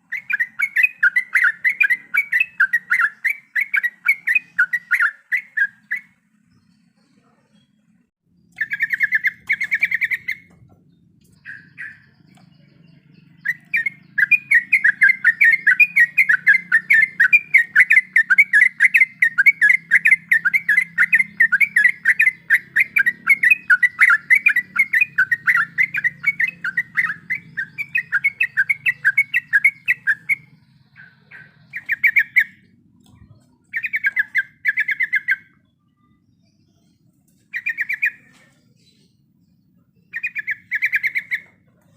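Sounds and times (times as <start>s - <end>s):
bird rolling chatter: 7.9s - 35.6s, 40.1s - 41.9s.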